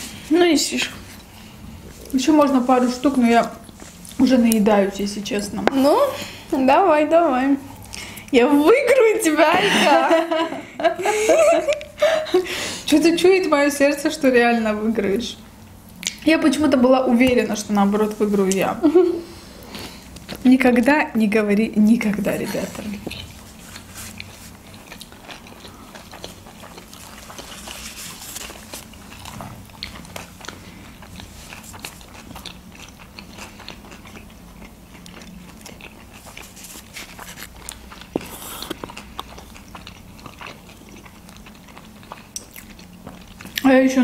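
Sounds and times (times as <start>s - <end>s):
people chewing food: 0.0s - 6.6s, 7.7s - 13.1s, 17.2s - 20.9s, 22.1s - 44.0s.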